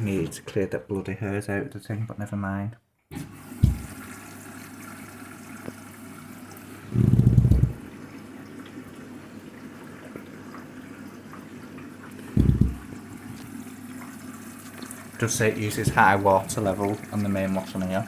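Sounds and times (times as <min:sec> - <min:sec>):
water rushing into washing machine: 0:03.1 - 0:18.0
low thud: 0:12.4 - 0:12.8.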